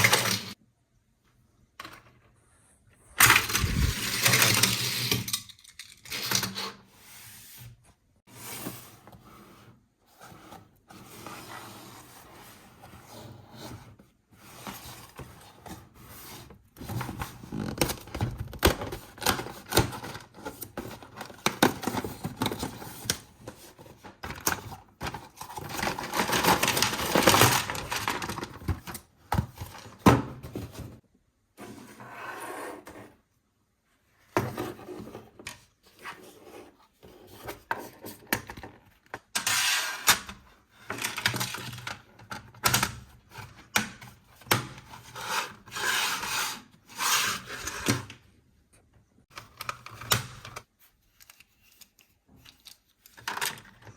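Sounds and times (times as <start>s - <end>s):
toy packaging being handled: 16.8s - 30.9s, 49.3s - 53.9s.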